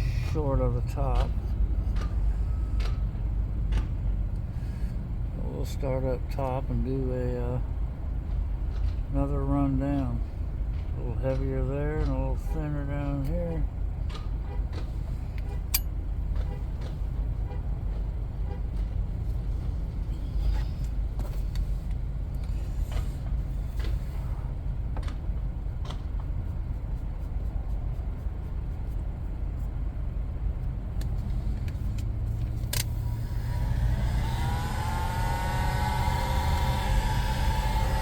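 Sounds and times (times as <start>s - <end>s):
steady low rumble: 0.0s - 34.3s.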